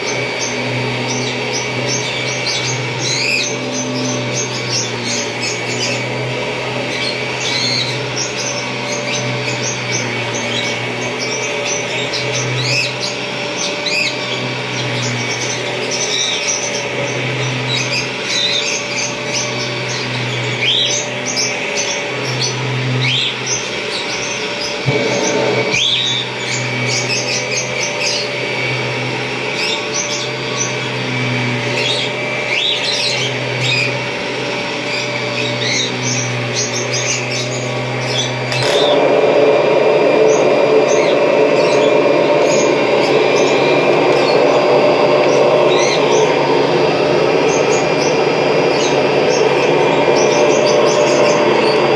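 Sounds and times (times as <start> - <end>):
vacuum cleaner humming: 0.0 - 51.9.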